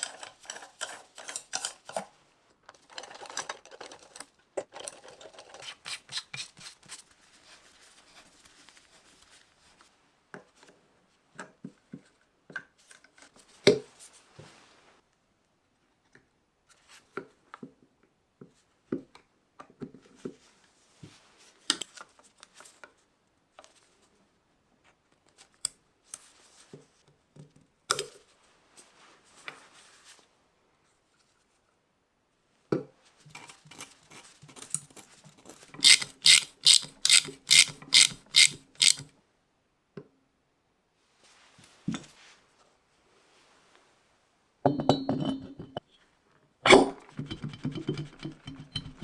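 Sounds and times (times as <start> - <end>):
even tool strokes: 35.8 - 39.0
metal parts clicking and knocking: 35.8 - 39.0.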